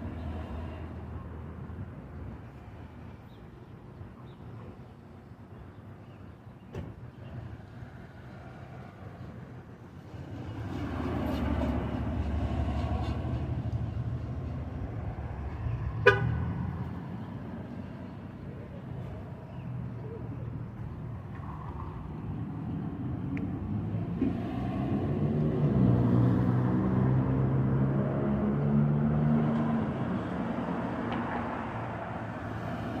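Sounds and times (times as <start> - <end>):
street traffic passing: 0.0 - 33.0
car horn toot: 16.0 - 16.4.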